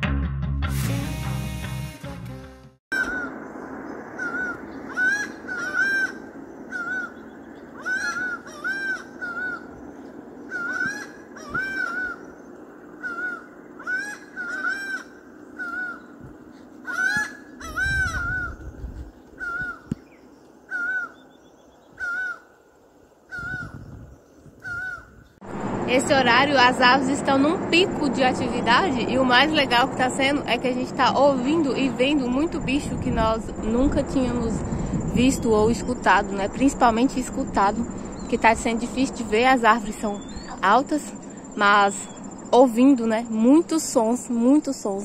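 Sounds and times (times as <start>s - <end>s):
bird calling short arched notes: 2.9s - 3.4s
low background hum: 3.0s - 45.0s.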